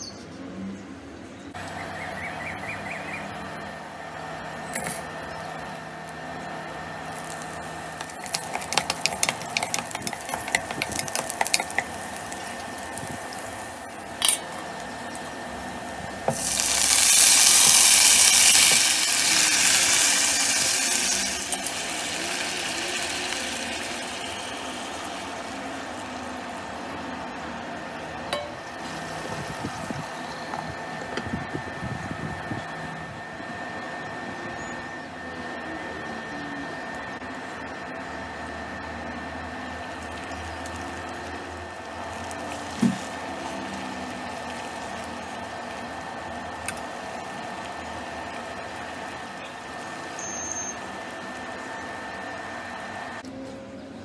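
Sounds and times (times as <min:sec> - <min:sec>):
aromatics crackling in hot oil: 0:04.7 - 0:32.0, 0:38.8 - 0:53.3
loud sizzle of food in oil: 0:07.0 - 0:27.0, 0:39.6 - 0:53.2.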